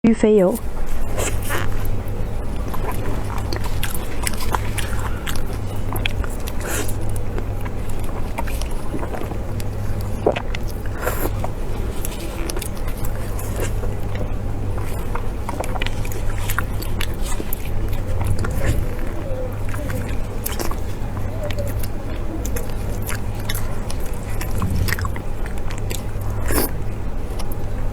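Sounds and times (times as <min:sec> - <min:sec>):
chewing and biting: 0:00.6 - 0:27.9
mouth clicks: 0:17.5 - 0:26.8
low hum: 0:17.6 - 0:27.9.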